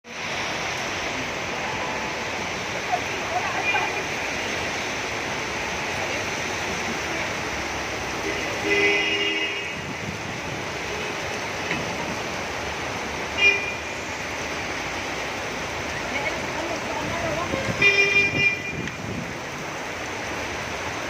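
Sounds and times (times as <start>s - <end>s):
wet street traffic: 0.0s - 21.0s
heavy rain hiss: 0.1s - 21.0s
vehicle horn: 8.2s - 10.0s, 13.4s - 13.9s, 17.8s - 18.9s.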